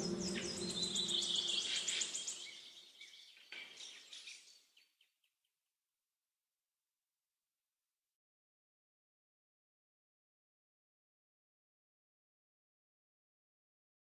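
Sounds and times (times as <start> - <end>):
birds chirping and trilling: 0.0 - 5.1.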